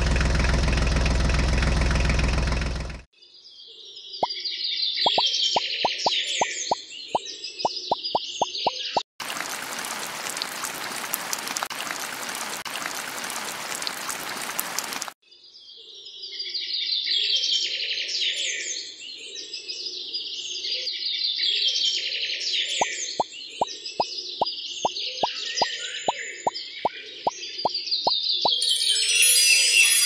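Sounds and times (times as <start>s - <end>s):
birds chirping and singing: 3.2s - 9.0s.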